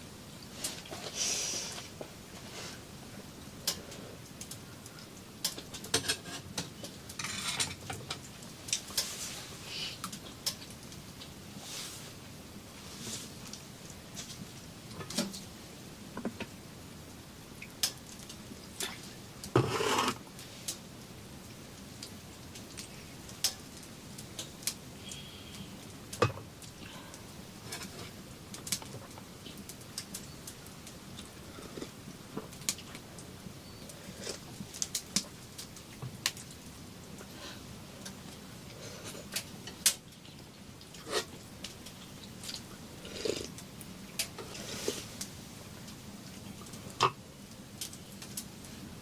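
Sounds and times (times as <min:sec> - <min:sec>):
rustling scrape: 0:00.6 - 0:02.8, 0:09.0 - 0:09.6, 0:11.6 - 0:12.2, 0:12.8 - 0:13.4, 0:19.6 - 0:20.6, 0:44.4 - 0:45.2
clicks and knocks of objects handled: 0:05.4 - 0:09.2, 0:27.6 - 0:33.0.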